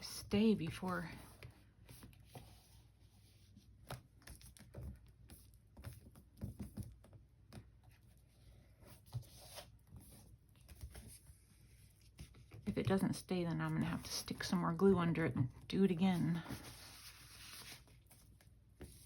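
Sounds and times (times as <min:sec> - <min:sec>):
paper rustling: 0:16.1 - 0:19.0.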